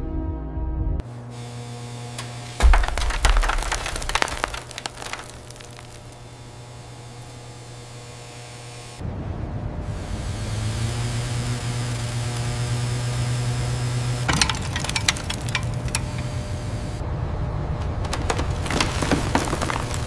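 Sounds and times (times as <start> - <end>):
sharp clicks and knocks: 17.8 - 20.0.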